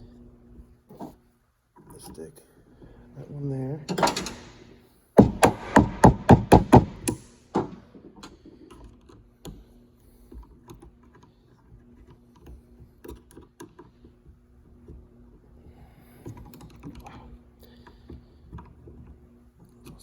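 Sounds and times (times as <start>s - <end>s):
sharp knocks of hand tools: 5.2s - 8.3s
faint clicks and taps of parts: 7.0s - 20.0s.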